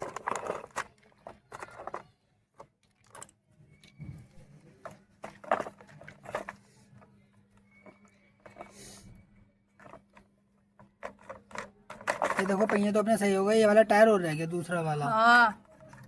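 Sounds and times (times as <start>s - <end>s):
plastic toy wheels clicking: 0.0s - 4.0s, 9.8s - 16.0s.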